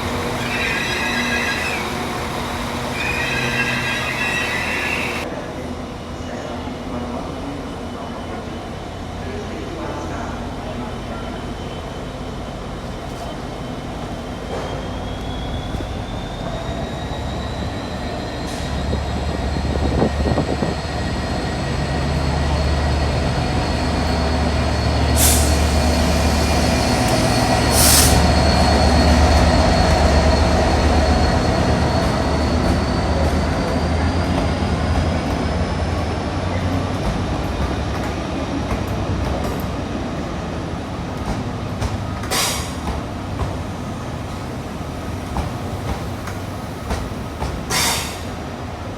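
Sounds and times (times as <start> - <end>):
train whine rising in pitch: 0.0 - 5.3, 14.2 - 36.2
train rumble: 0.0 - 48.9.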